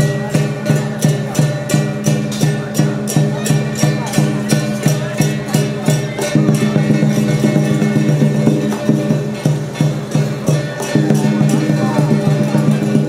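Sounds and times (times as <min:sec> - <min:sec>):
percussion strikes: 0:00.0 - 0:13.0.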